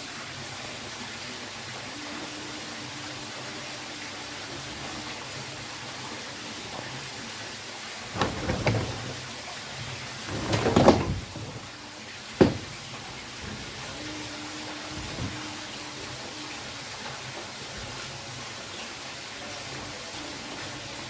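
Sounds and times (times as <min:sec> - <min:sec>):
machine parts clattering: 0:08.1 - 0:09.3, 0:10.2 - 0:11.7
machine parts rattling: 0:08.1 - 0:09.3, 0:10.2 - 0:11.7.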